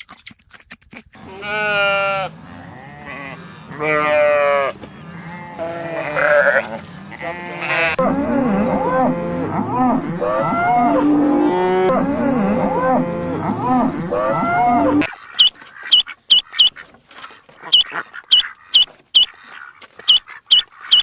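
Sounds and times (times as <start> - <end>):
cattle mooing: 1.2 - 15.1.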